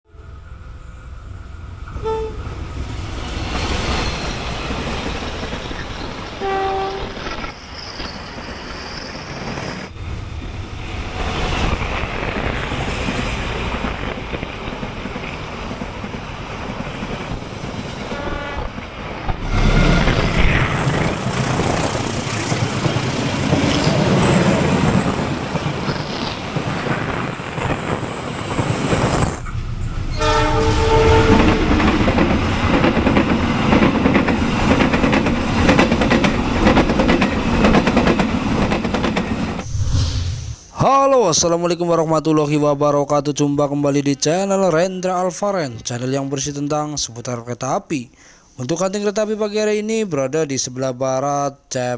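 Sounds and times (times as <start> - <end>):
trains running on rails: 0.1 - 40.9
locomotive horn: 1.9 - 2.5, 6.4 - 7.3, 18.1 - 18.8, 30.1 - 31.8.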